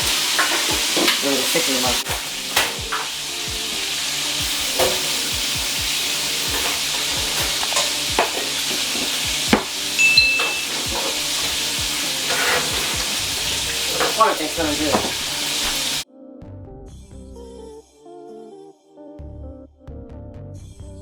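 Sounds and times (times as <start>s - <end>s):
food sizzling in a pan: 0.0s - 16.0s
spoon knocking in a bowl: 7.3s - 11.5s
high beep: 10.0s - 10.8s.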